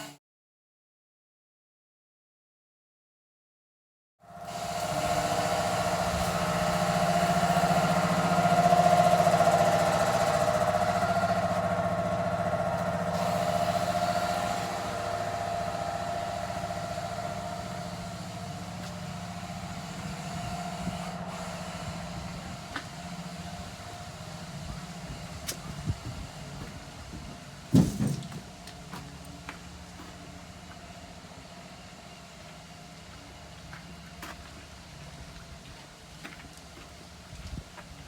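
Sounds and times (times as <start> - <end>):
mechanical motor hum: 4.3 - 38.0.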